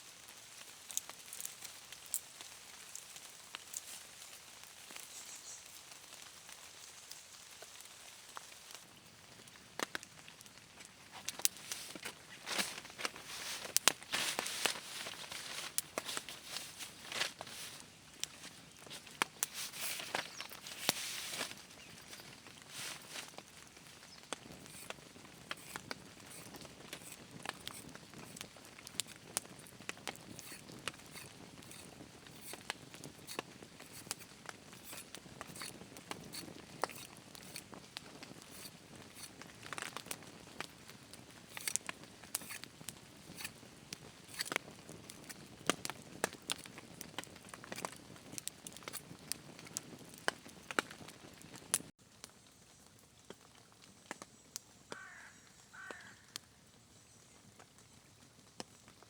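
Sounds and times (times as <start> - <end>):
soft steady hiss: 0.0 - 45.9
sharp crackles and ticks: 0.6 - 4.0, 6.1 - 56.5.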